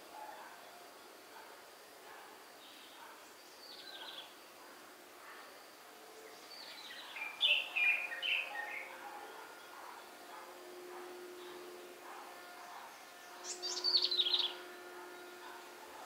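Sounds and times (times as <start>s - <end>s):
faint steady background hiss: 0.0s - 16.0s
birds chirping: 2.1s - 4.8s, 6.2s - 16.0s.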